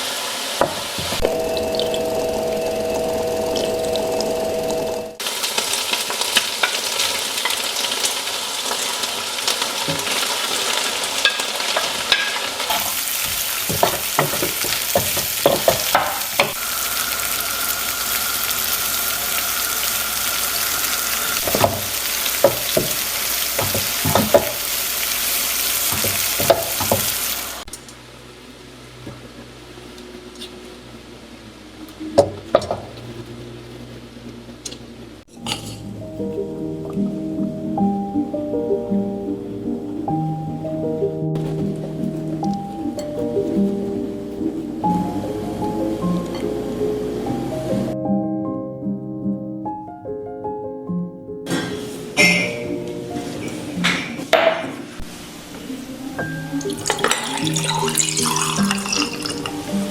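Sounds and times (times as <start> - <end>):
food sizzling in a pan: 0.0 - 27.7, 54.9 - 59.9.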